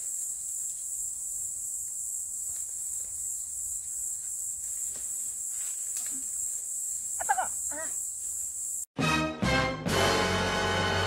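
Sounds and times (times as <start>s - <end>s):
high-pitched insect chorus: 0.0s - 8.9s.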